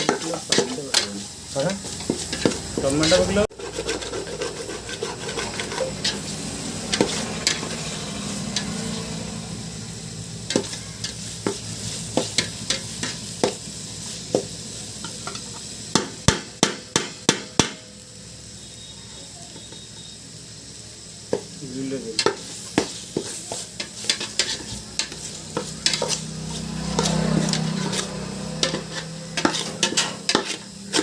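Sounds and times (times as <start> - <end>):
spoon stirring and scraping: 0.0 - 9.0, 10.5 - 13.6, 22.2 - 31.0
food sizzling in a pan: 0.0 - 31.0.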